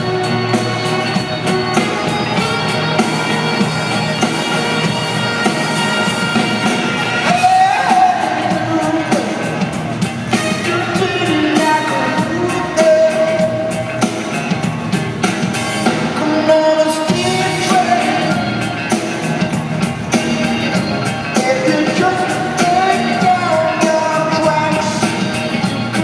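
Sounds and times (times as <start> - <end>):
rock band playing: 0.0 - 26.0
steady drum beat: 0.0 - 26.0
man singing: 7.2 - 13.9, 16.0 - 18.5, 21.3 - 25.5.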